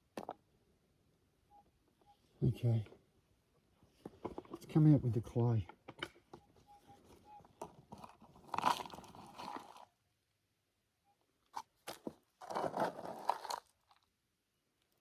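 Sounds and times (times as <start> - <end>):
digging tool scraping clay: 11.6 - 13.7.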